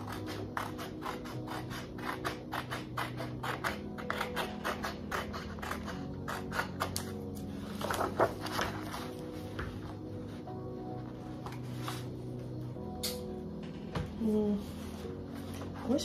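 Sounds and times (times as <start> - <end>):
scissors snipping paper: 0.0 - 8.3.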